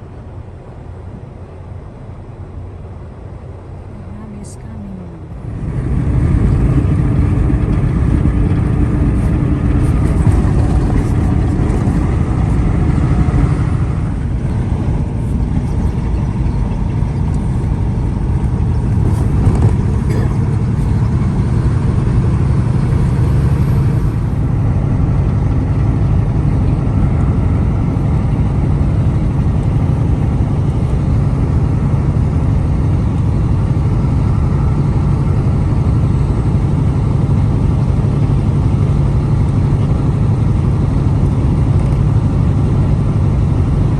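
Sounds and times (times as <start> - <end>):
truck engine and road rumble: 0.0 - 43.9.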